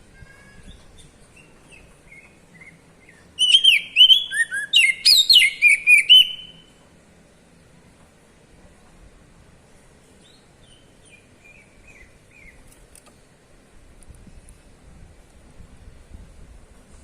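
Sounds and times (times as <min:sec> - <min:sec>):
songbird singing: 0:00.0 - 0:06.8, 0:10.0 - 0:13.1.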